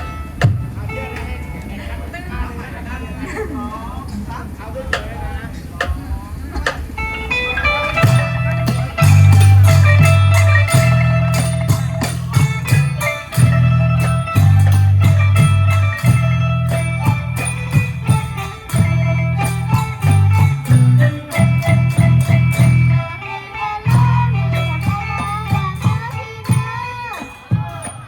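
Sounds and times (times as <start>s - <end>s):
folk ensemble playing: 0.0s - 2.5s, 6.6s - 28.0s
drum beat: 0.4s - 1.0s, 7.7s - 23.1s, 23.9s - 28.0s.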